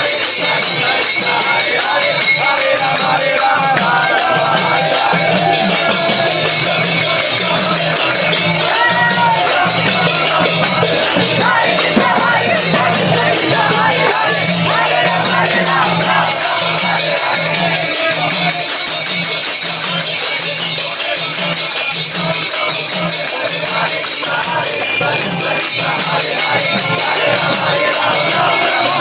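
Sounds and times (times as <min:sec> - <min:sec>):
drum beating steady rhythm: 0:00.0 - 0:29.0
hand cymbals jingling: 0:00.0 - 0:29.0
devotional music: 0:22.4 - 0:29.0.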